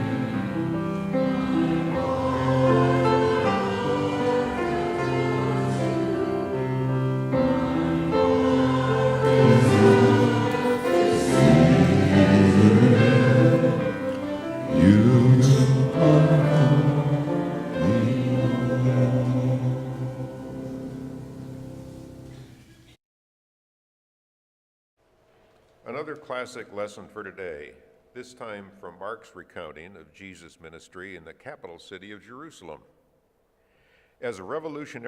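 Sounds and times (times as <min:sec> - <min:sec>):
choir singing: 0:00.0 - 0:21.4
held accompanying chords: 0:00.0 - 0:22.6.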